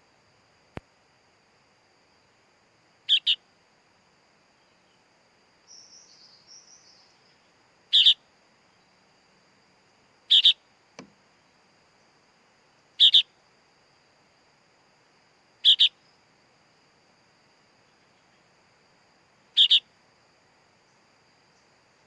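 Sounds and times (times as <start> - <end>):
bird chick double chirps: 3.1 - 3.4, 7.9 - 8.2, 10.3 - 10.6, 13.0 - 13.3, 15.6 - 16.0, 19.6 - 19.9
faint high twittering: 4.5 - 9.1, 10.3 - 10.6, 15.6 - 16.2, 19.5 - 19.9.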